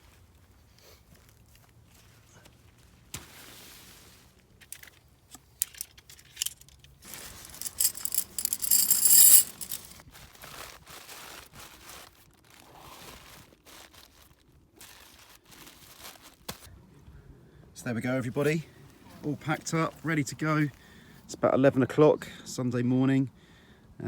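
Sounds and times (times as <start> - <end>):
small clicks and clinks: 5.6 - 10.0
bags and fabric rustling: 7.1 - 10.0.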